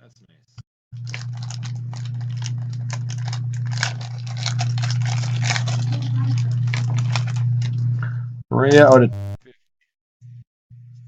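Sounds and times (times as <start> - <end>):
cards and wrappers crinkling: 1.0 - 7.9
low electrical hum: 1.0 - 9.4.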